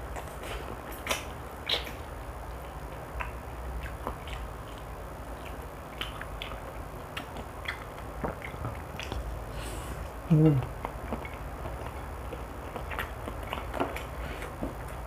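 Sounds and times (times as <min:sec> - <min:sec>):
chewing and mouth smacks: 0:00.0 - 0:09.4, 0:10.0 - 0:15.0
low steady hum: 0:00.0 - 0:15.0.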